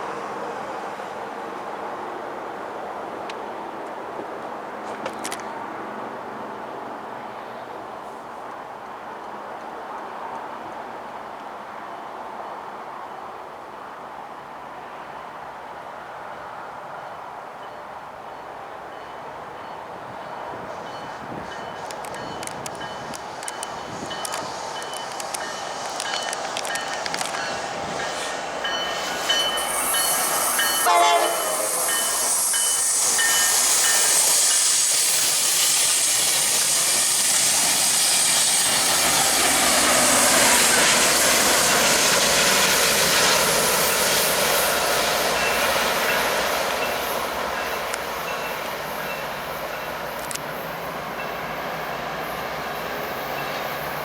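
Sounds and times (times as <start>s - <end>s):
train wheels on rails: 0.0s - 6.6s, 18.5s - 54.0s
train horn: 29.5s - 33.6s.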